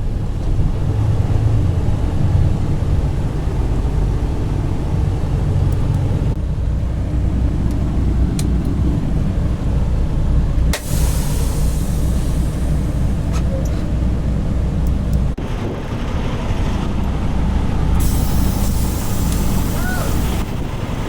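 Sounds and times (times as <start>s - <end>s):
diesel engine rumbling: 0.0s - 21.0s
air hissing: 10.7s - 13.6s, 17.9s - 21.0s.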